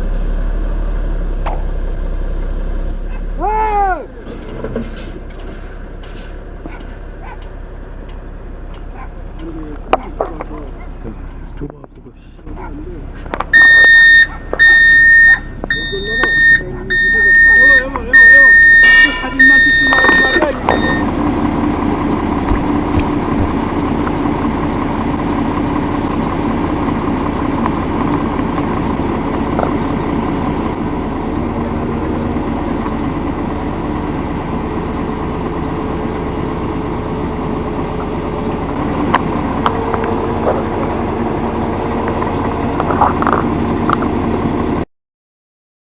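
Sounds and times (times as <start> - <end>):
heavy vehicle engine idling: 0.0 - 44.8.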